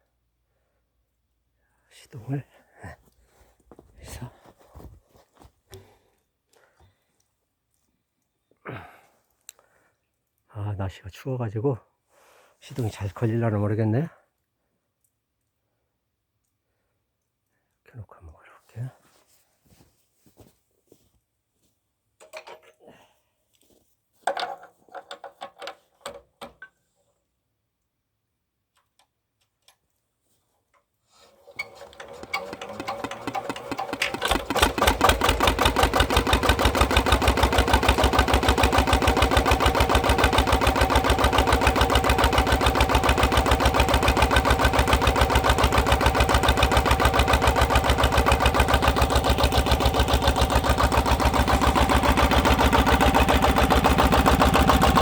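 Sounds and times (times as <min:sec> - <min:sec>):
diesel engine starting and running: 0:31.5 - 0:55.0.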